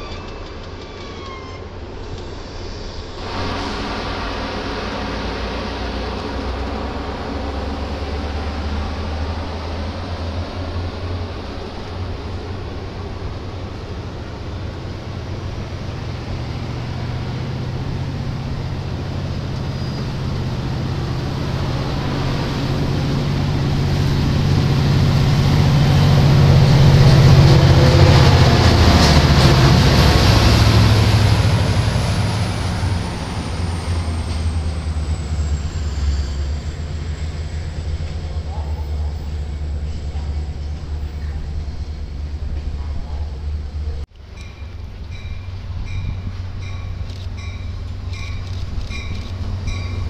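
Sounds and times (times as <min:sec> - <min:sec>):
diesel locomotive engine: 0:00.0 - 0:50.0
high whine: 0:02.5 - 0:10.1.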